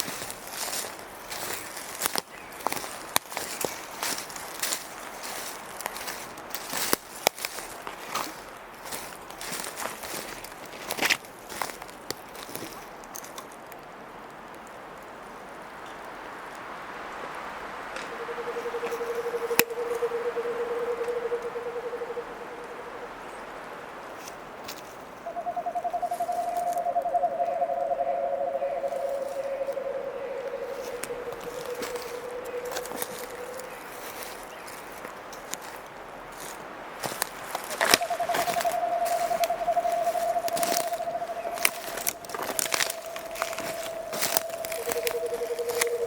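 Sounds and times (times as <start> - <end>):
crackles and snaps: 0.0 - 15.2, 28.7 - 46.0
low pulsed animal trills: 18.1 - 23.2, 25.2 - 34.3, 37.9 - 46.0.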